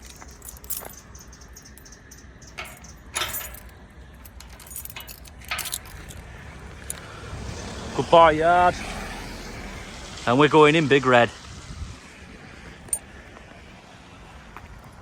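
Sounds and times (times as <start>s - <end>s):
small metal objects jingling: 0.0s - 7.0s.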